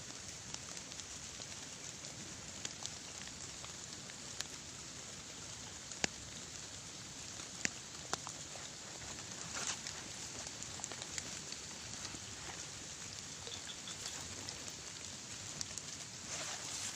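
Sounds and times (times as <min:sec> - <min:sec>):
light rain falling: 0:00.0 - 0:16.9.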